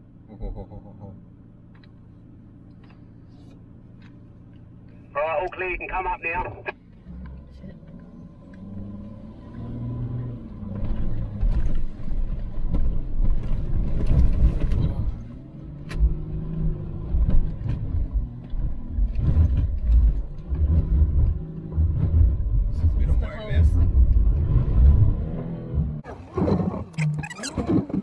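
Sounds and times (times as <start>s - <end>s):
diesel engine revving: 7.0s - 27.3s.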